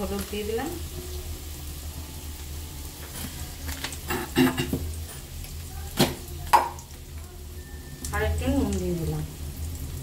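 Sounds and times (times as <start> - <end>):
potatoes sizzling in oil: 0.0 - 10.0.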